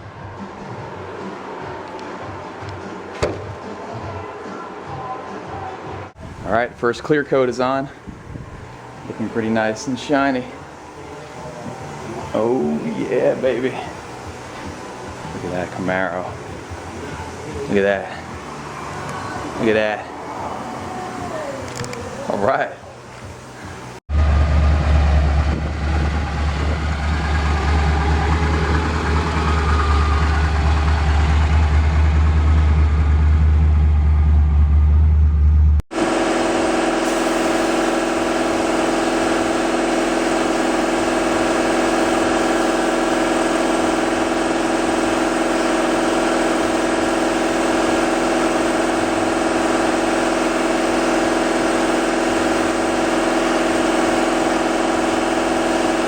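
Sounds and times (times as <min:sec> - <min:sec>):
car engine running: 0:23.0 - 0:56.0.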